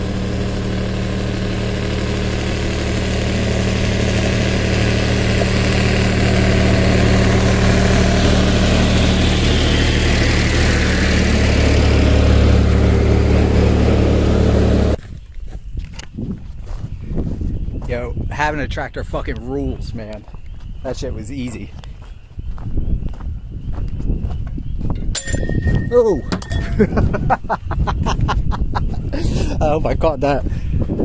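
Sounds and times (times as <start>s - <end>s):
tractor engine running: 0.0s - 15.0s, 25.0s - 28.0s.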